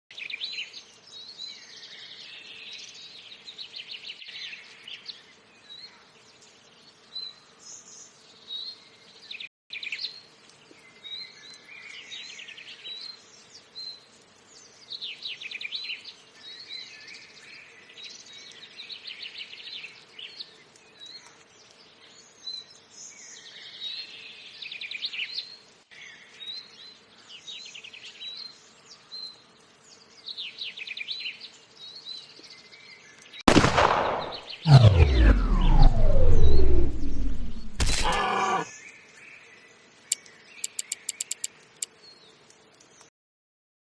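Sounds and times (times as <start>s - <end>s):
birds chirping and trilling: 35.6s - 39.2s, 40.1s - 41.5s.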